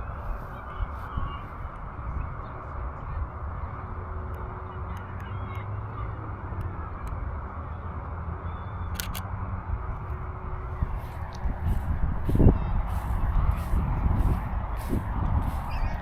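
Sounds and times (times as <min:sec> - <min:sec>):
low wind rumble: 0:00.0 - 0:16.0
sharp clicks: 0:08.9 - 0:09.3.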